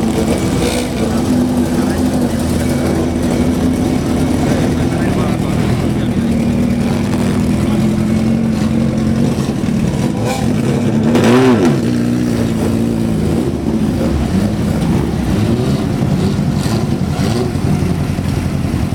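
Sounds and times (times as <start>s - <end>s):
racing car engines: 0.0s - 18.9s.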